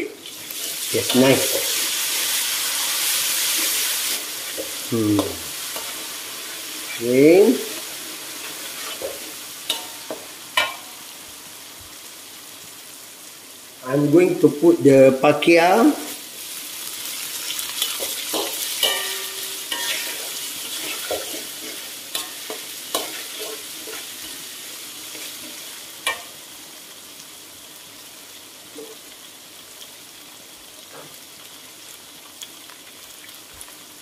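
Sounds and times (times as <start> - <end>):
food sizzling in a wok: 0.0 - 34.0
metal utensil scraping a wok: 7.7 - 10.8, 17.8 - 24.4.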